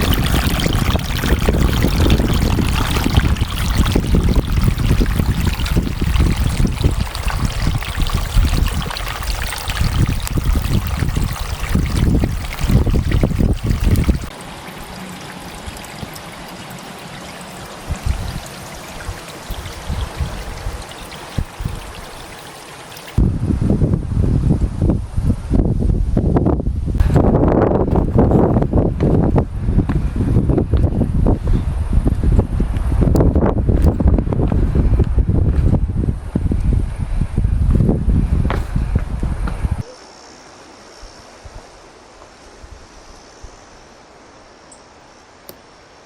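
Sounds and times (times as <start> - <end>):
wind buffeting microphone: 0.0 - 14.4, 17.5 - 22.4, 23.1 - 39.9.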